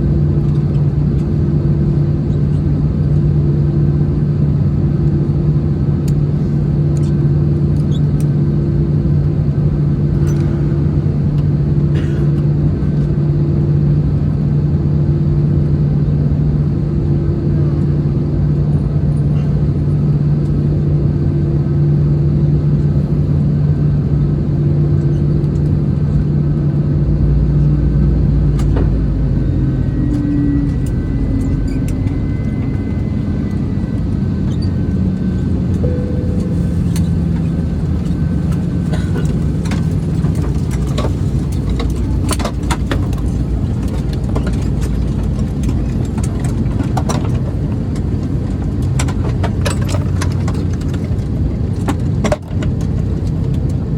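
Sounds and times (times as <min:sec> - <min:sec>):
airplane cabin engine hum: 0:00.0 - 0:53.9
faint high tone: 0:35.8 - 0:38.3.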